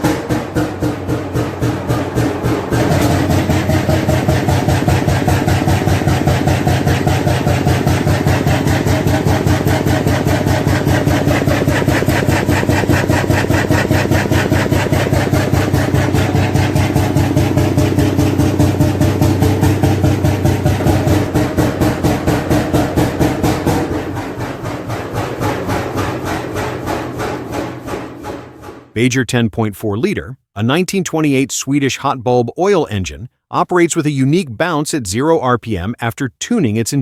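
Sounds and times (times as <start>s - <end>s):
oil engine running steadily: 1.4s - 24.5s.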